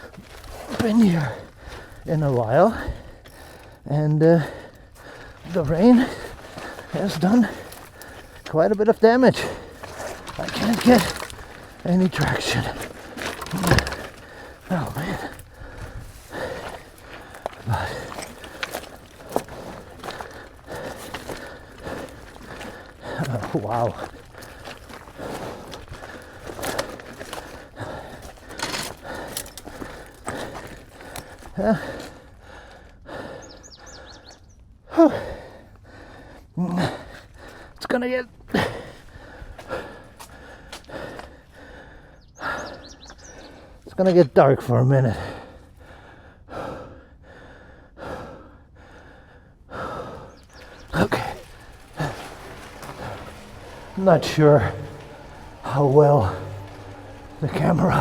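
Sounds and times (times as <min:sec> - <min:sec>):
strained gasps: 0:00.0 - 0:37.8, 0:38.4 - 0:44.0, 0:45.0 - 0:58.0
rider breathing hard: 0:00.0 - 0:44.0, 0:45.0 - 0:58.0
bike rattling over rough trail: 0:00.0 - 0:46.8, 0:49.2 - 0:58.0.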